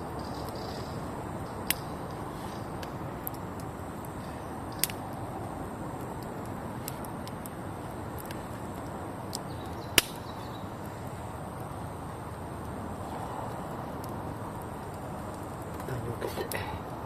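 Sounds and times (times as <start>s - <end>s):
campfire burning: 0.0s - 17.0s
fire popping: 0.0s - 17.0s.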